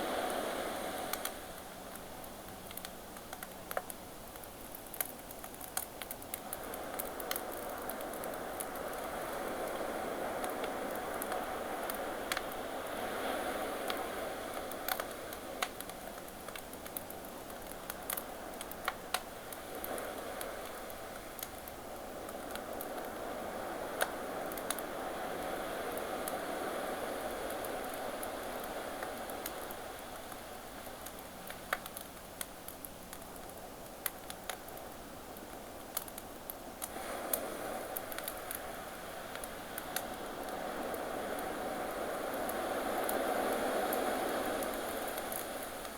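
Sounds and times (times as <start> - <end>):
ocean waves: 0.0 - 1.5, 6.6 - 15.7, 22.0 - 30.8, 36.9 - 45.9
campfire crackling and popping: 1.0 - 12.9, 13.8 - 23.2, 23.9 - 24.9, 27.2 - 45.9.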